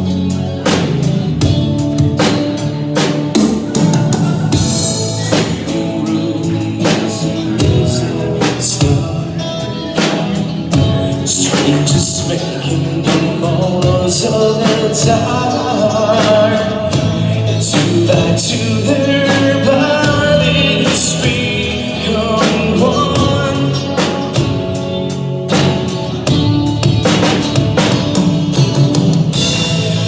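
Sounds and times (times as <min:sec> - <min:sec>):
live band playing: 0:00.0 - 0:30.0.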